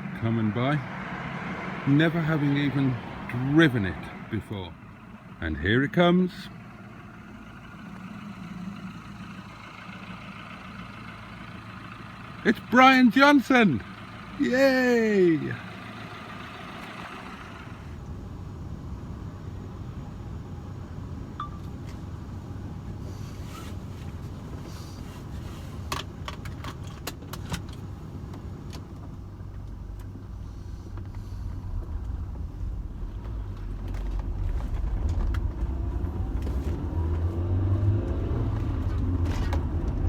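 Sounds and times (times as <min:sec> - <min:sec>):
vehicle engine and road rumble: 0:00.0 - 0:40.0.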